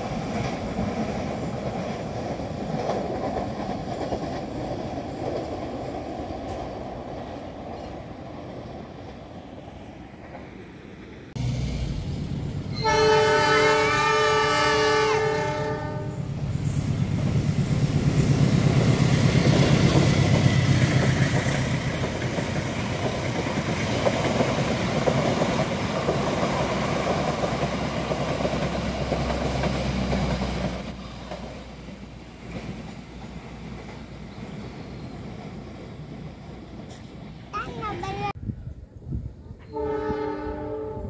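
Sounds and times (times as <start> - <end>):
locomotive horn: 12.7 - 16.2, 39.6 - 41.0.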